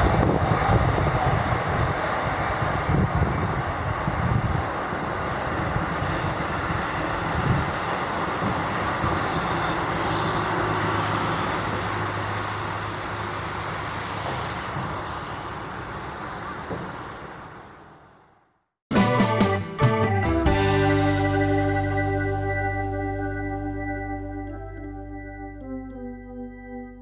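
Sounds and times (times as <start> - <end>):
electric train rumbling past: 0.0 - 18.4.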